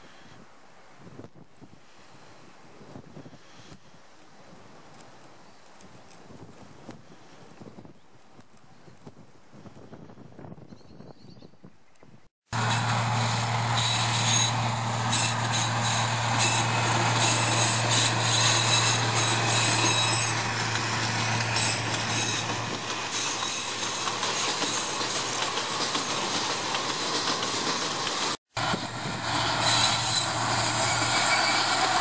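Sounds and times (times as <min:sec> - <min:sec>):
diesel locomotive engine hum: 0:12.5 - 0:32.0.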